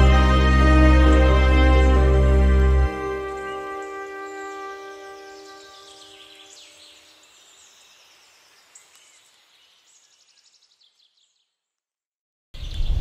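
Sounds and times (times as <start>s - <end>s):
loud music: 0.0s - 4.5s
faint birdsong: 0.7s - 11.8s, 12.6s - 13.0s.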